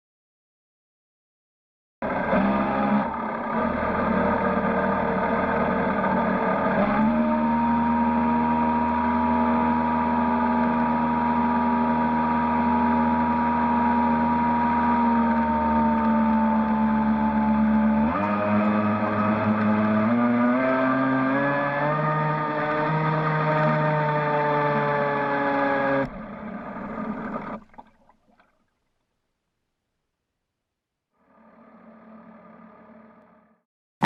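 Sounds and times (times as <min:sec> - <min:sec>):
boat motor running: 0:02.0 - 0:28.6, 0:31.2 - 0:33.6.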